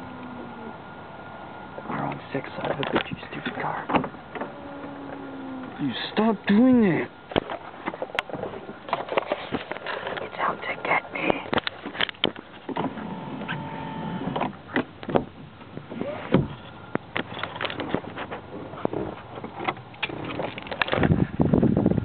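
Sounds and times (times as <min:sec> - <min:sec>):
electric sunroof motor running: 0:00.0 - 0:06.0, 0:12.7 - 0:19.2.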